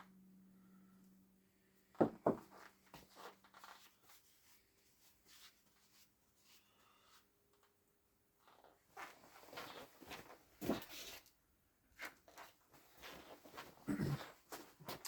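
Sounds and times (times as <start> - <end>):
faint steady hum: 0.0 - 3.0
sharp knocks on workbench: 2.0 - 2.5.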